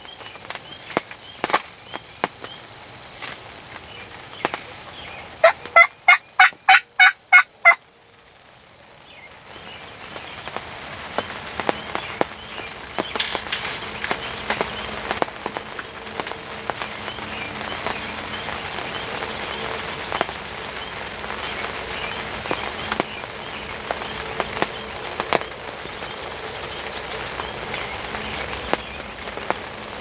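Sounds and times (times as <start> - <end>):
rain pattering on a blind: 0.0 - 30.0
turkey yelps: 5.2 - 7.8.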